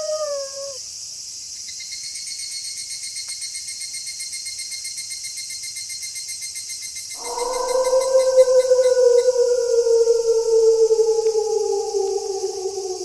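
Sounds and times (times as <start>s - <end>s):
wolf howling: 0.0s - 0.8s, 7.2s - 13.0s
crickets chirping: 7.1s - 13.0s
night insects hissing: 7.2s - 13.0s.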